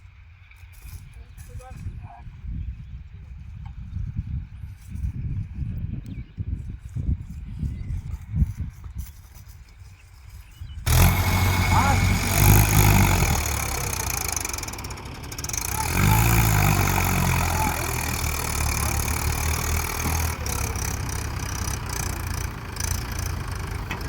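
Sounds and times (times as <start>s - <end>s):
tractor diesel engine running: 10.8s - 24.0s.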